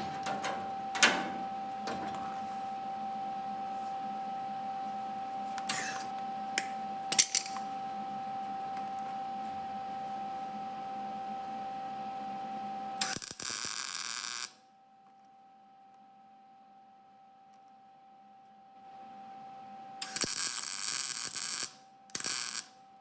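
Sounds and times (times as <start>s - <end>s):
welding crackling buzz: 0.0s - 2.4s, 13.0s - 14.6s, 20.0s - 22.8s
faint hum: 0.0s - 13.0s.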